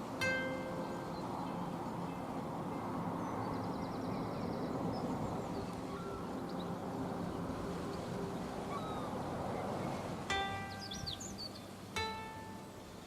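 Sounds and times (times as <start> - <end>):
faint bird chirps: 3.2 - 6.7, 8.7 - 9.1, 10.4 - 13.0.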